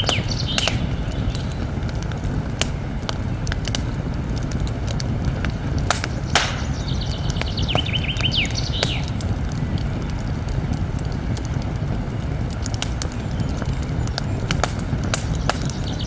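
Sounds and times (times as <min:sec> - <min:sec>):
small bird chirping: 0:00.0 - 0:01.7, 0:06.0 - 0:09.1, 0:15.2 - 0:16.0
campfire crackling and popping: 0:00.0 - 0:16.0
low rumble of flames: 0:00.0 - 0:16.0.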